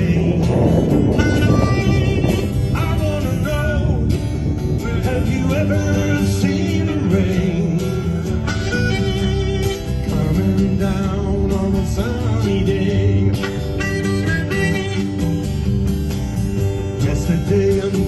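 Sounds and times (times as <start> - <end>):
harmonica lead: 0.0 - 10.8, 13.3 - 16.0
bass: 0.0 - 18.0
strummed guitar: 0.0 - 18.0.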